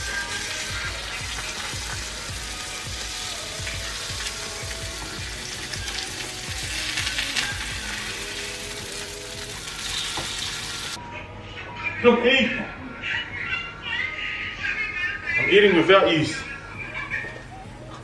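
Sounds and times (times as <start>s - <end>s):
eggs sizzling in a frying pan: 0.0s - 11.0s.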